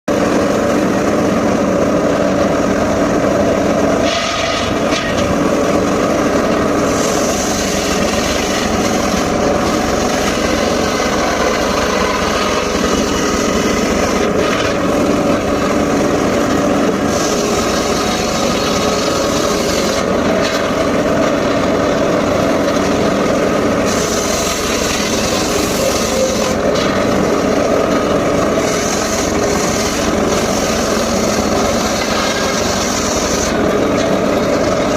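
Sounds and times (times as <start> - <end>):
circular saw drone: 0.1 - 34.9
saw blade hissing through wood: 3.9 - 5.6, 6.4 - 20.7, 23.7 - 33.6.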